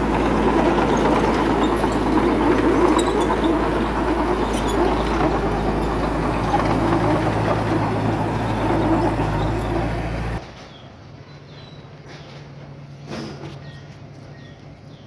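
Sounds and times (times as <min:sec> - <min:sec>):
diesel machinery engine rattling: 0:00.0 - 0:10.4.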